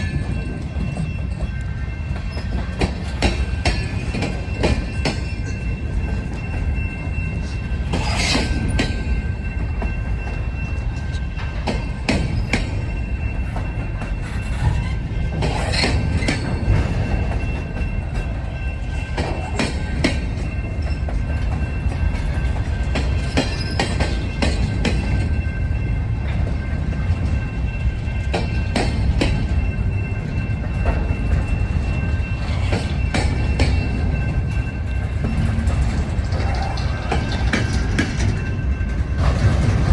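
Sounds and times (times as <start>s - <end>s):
train wheels rumbling on rail: 0.0s - 39.9s
wheels clicking over rail joints: 0.0s - 39.9s
high-pitched wheel squeal: 13.3s - 16.5s.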